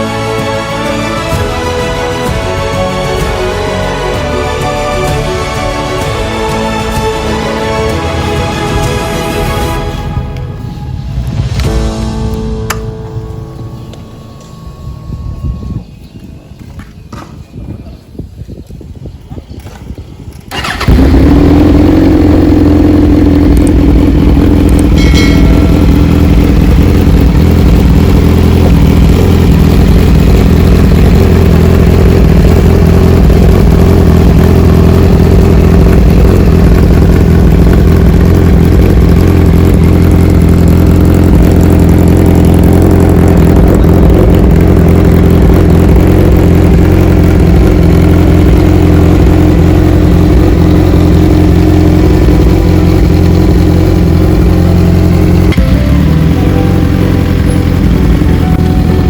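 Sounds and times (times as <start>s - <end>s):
motorcycle engine idling loudly: 20.5s - 59.0s.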